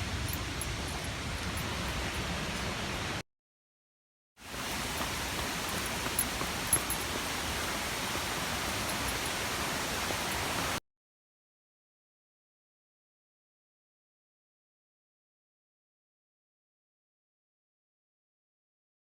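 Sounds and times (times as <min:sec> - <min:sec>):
waterfall rushing: 0:00.0 - 0:03.2, 0:04.4 - 0:10.8.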